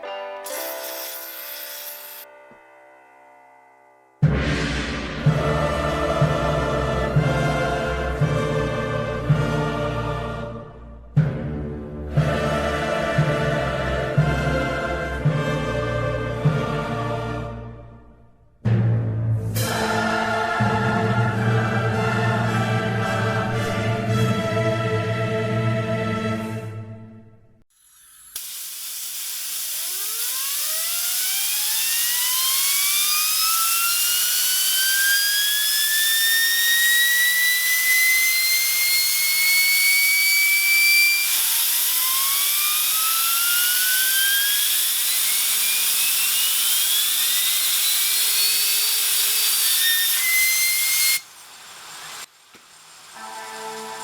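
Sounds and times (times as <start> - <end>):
fidget spinner bearings whining: 0.4 - 2.3, 27.7 - 54.0
loud steady hiss: 0.4 - 2.3, 28.3 - 32.0, 35.6 - 54.0.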